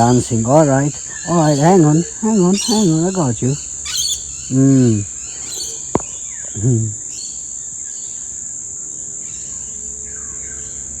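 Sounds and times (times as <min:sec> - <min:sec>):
insects droning: 0:00.0 - 0:11.0
brief low vocal sound: 0:04.5 - 0:05.1, 0:06.0 - 0:07.0.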